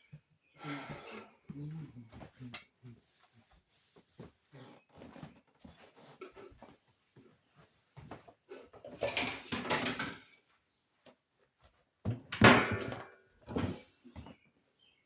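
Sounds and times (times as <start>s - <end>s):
kitchen items clattering: 8.5s - 10.4s, 12.2s - 14.0s.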